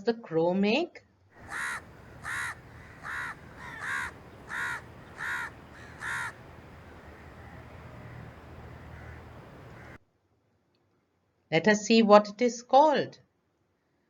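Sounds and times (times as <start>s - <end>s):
crow cawing: 1.4s - 10.0s
low hiss: 1.4s - 10.0s.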